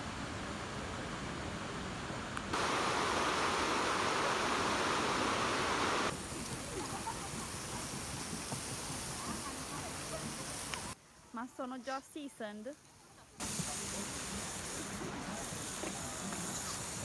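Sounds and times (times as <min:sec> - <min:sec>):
rushing water: 0:02.5 - 0:11.0.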